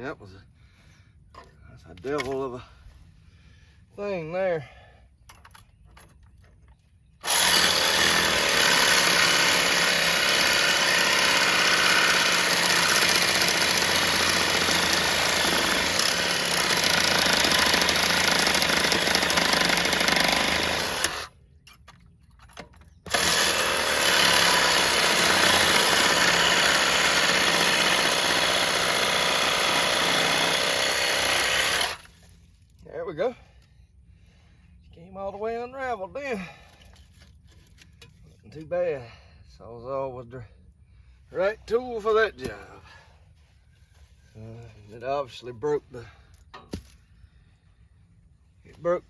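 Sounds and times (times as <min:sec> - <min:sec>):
reciprocating saw cutting hose: 0:23.1 - 0:32.1.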